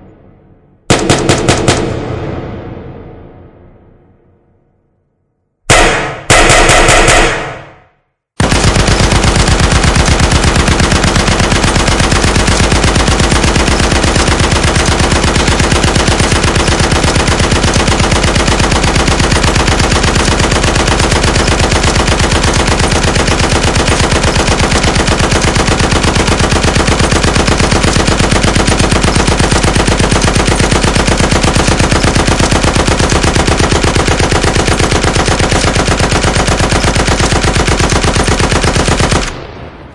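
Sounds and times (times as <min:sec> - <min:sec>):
gunfire burst: 0:00.0 - 0:04.2, 0:05.7 - 0:39.9
automatic machine-gun fire: 0:00.9 - 0:03.4, 0:05.7 - 0:39.9.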